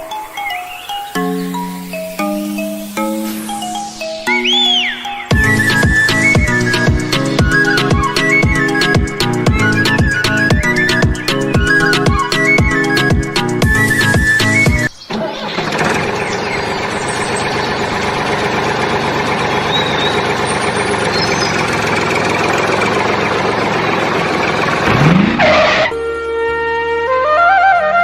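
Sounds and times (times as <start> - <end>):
flute music: 0.0 - 15.0, 25.5 - 28.0
engine running roughly: 5.3 - 25.9.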